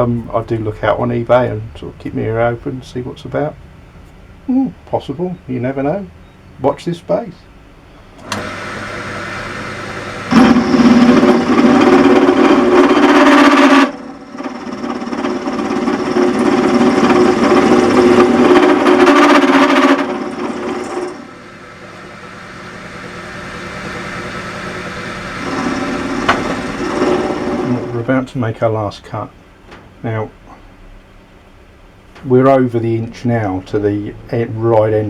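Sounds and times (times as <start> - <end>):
drill press motor hum: 7.9 - 28.1
cutter milling steel: 8.2 - 28.1.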